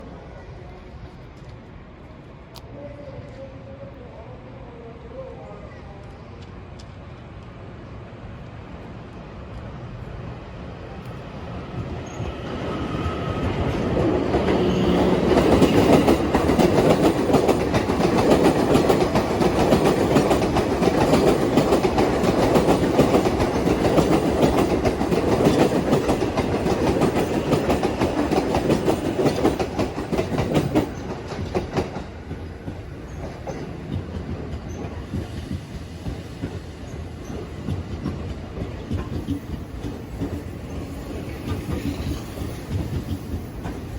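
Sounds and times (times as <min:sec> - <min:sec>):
train wheels clattering over rail joints: 0:13.0 - 0:43.9.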